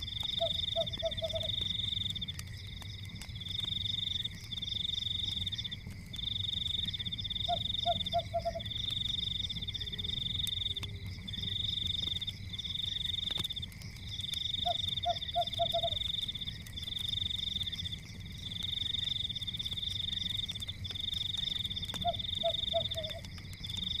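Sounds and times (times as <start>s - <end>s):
frog croaks: 0.0s - 1.7s, 7.4s - 8.8s, 14.6s - 16.2s, 21.4s - 23.3s
faint crackles: 0.0s - 24.0s
frogs trilling: 0.0s - 24.0s.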